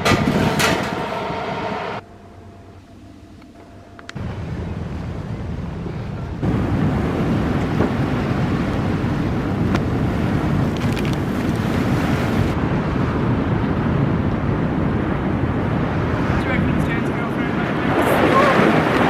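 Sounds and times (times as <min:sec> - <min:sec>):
wind buffeting microphone: 0:00.0 - 0:01.8, 0:04.2 - 0:19.0
water rushing past boat: 0:04.2 - 0:19.0.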